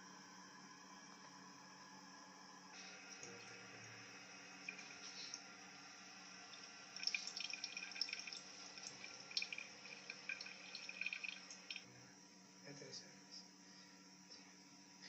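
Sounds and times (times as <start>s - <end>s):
faint steady hum: 0.0s - 15.0s
water trickling in toilet cistern: 2.9s - 11.8s.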